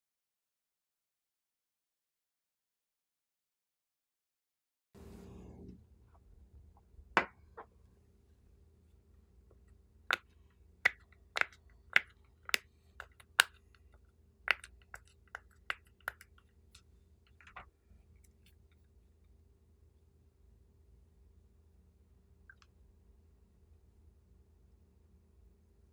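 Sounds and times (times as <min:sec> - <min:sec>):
sticky slime clicks and pops: 0:14.5 - 0:16.3.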